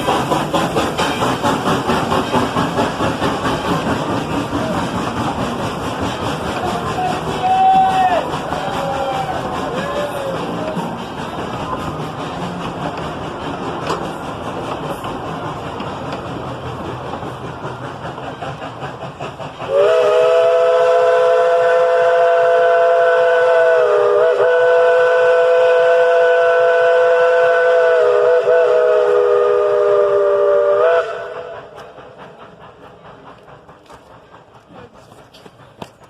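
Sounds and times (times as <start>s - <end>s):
train running noise: 0.0s - 36.0s
steam locomotive chime whistle: 19.7s - 31.7s.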